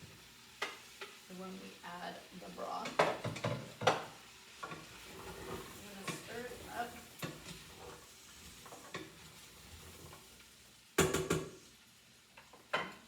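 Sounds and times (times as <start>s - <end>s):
vegetables sizzling in a pan: 0.0s - 13.0s
knock: 11.0s - 11.5s.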